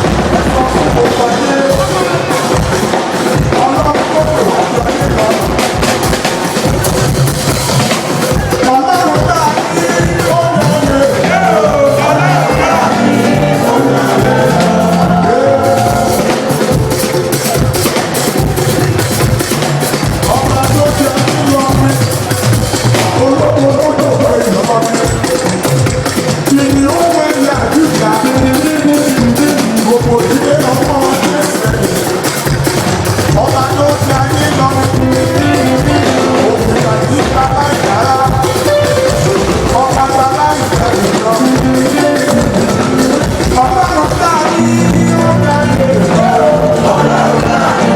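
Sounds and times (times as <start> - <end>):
church choir singing gospel: 0.0 - 47.9
drums and instruments: 0.0 - 47.9
choir singing: 9.7 - 19.1, 34.4 - 47.9.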